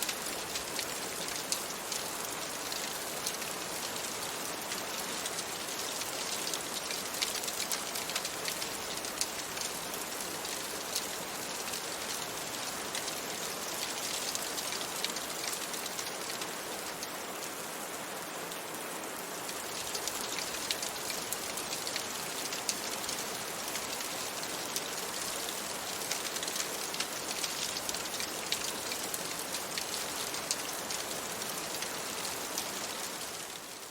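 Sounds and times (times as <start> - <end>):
rain on a window: 0.0 - 33.9
rain drop ticks: 4.7 - 17.1, 24.7 - 33.0.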